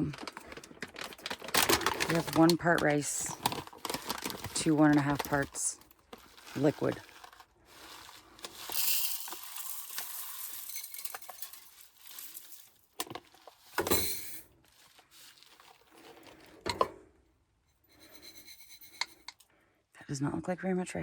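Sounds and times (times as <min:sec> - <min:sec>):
containers knocking and clinking: 0:00.0 - 0:14.4
dry rice pouring: 0:06.2 - 0:16.5.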